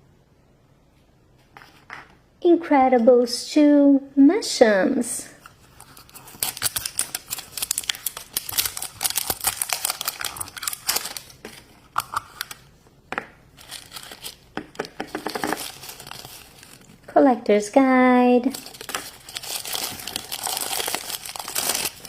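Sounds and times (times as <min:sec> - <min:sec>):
packaging crinkling and tearing: 0:05.4 - 0:12.7, 0:13.6 - 0:17.0, 0:18.4 - 0:22.0.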